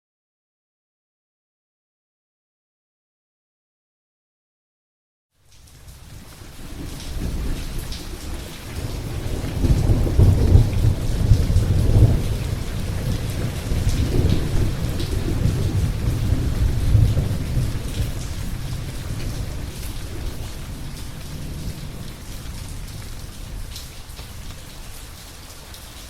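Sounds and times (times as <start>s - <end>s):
steady rain: 5.3s - 26.0s
rolling thunder: 6.6s - 25.0s.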